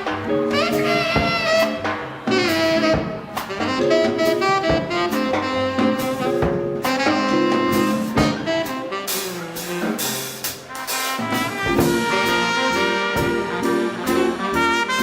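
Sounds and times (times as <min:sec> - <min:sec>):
swing band playing: 0:00.0 - 0:15.0
sharp drum hits: 0:11.1 - 0:13.6.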